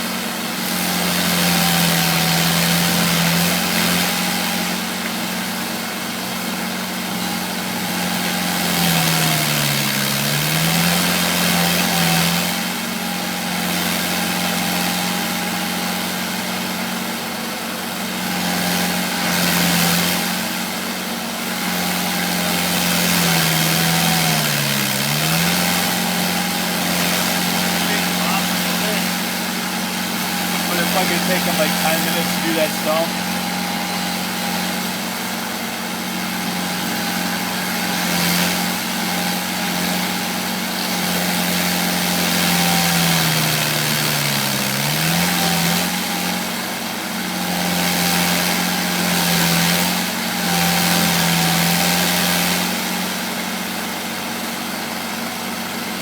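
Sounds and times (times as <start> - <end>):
stump grinder running: 0.0 - 56.0.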